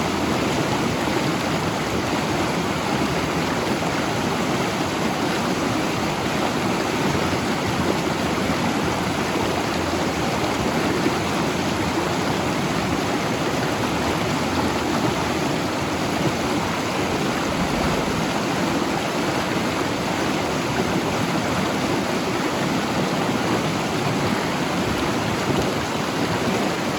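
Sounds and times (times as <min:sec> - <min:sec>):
river rushing over rocks: 0:00.0 - 0:26.9.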